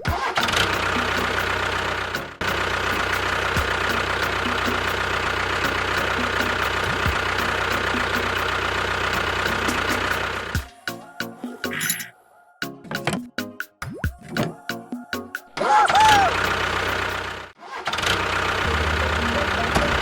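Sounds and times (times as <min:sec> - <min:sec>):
tractor engine idling: 0:00.1 - 0:10.8, 0:16.2 - 0:20.0.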